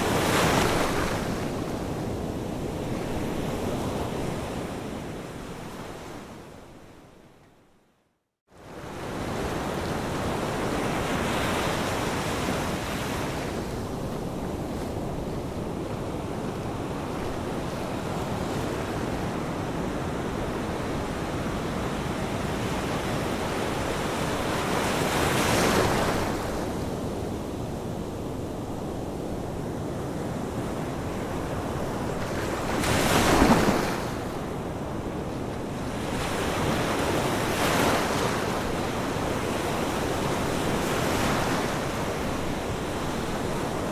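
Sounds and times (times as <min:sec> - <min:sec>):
ocean waves breaking: 0:32.1 - 0:34.6.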